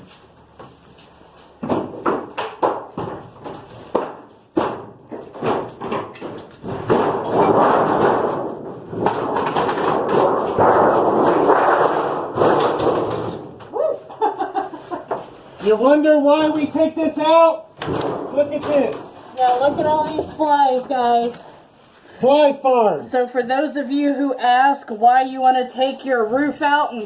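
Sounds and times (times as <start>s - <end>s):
knocks and thuds on metal panel: 1.6s - 13.7s, 17.8s - 20.8s
panel scraping and rattling: 17.8s - 21.1s.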